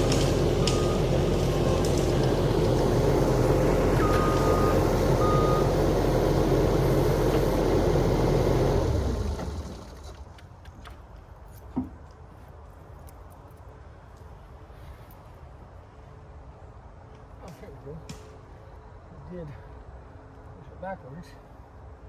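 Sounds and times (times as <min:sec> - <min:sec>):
loader engine running hard: 0:00.0 - 0:10.2
backup alarm beeps: 0:00.6 - 0:01.1, 0:04.0 - 0:05.8.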